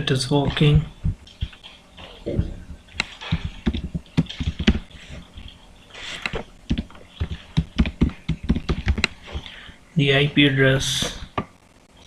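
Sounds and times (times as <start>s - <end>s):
keyboard typing: 2.9s - 9.6s.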